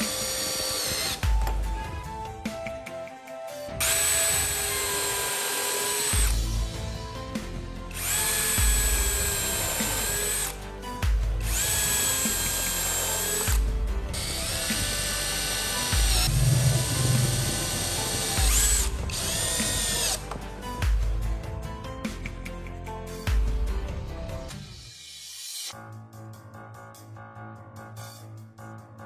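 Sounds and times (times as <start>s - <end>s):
power tool motor whine: 0.0s - 2.0s, 3.7s - 6.9s, 7.9s - 10.6s, 11.4s - 20.4s
background music: 0.0s - 29.0s.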